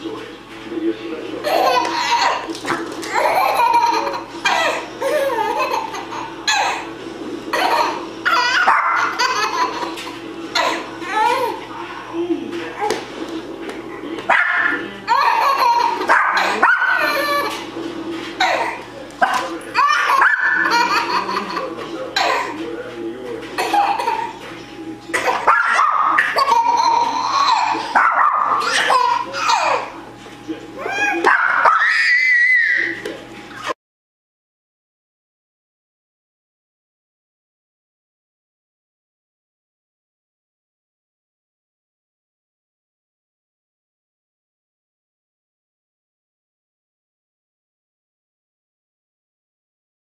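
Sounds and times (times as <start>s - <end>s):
baby laughing: 1.4s - 6.9s, 7.5s - 11.6s, 14.6s - 17.7s, 18.4s - 22.6s, 23.6s - 24.4s, 25.1s - 30.0s
dog barking and yipping: 8.5s - 9.2s, 14.3s - 14.8s, 15.8s - 17.5s, 19.3s - 20.7s, 25.4s - 26.4s, 27.4s - 29.1s, 31.2s - 32.8s.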